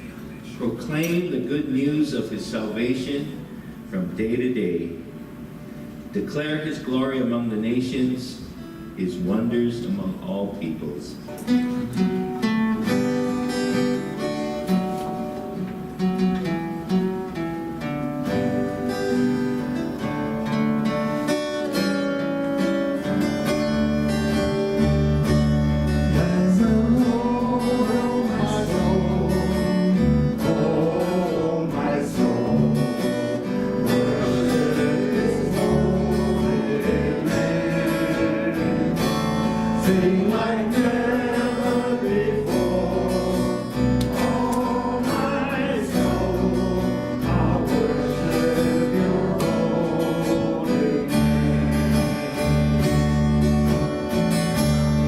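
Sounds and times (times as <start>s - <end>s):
strummed acoustic guitar: 11.2s - 55.0s
bass guitar: 11.5s - 55.0s
person singing: 26.0s - 53.0s.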